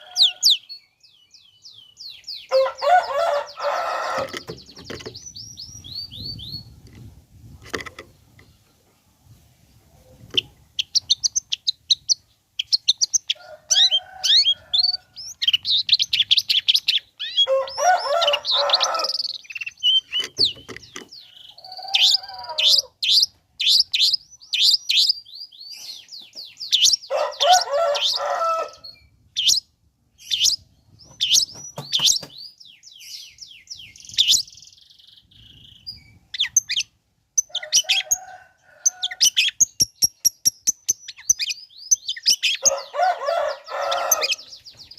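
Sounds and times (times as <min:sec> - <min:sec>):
harsh scratchy bird chattering: 0:10.2 - 0:25.2, 0:39.1 - 0:42.8.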